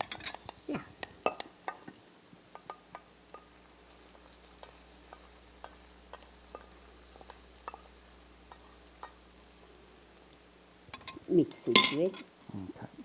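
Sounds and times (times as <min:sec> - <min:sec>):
sharp pops and crackles: 0:00.0 - 0:09.4
spices sizzling in hot oil: 0:00.0 - 0:12.5.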